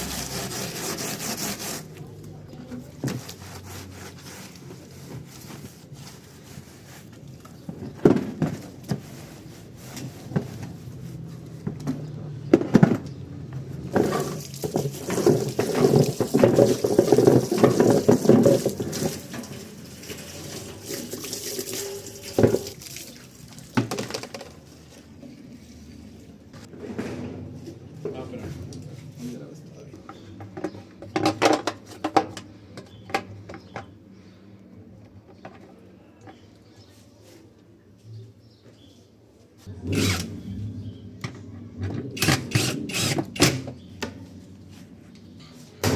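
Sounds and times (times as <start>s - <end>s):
brushes scrubbing: 0.0s - 2.2s, 2.8s - 7.4s, 8.9s - 11.5s, 14.0s - 23.0s.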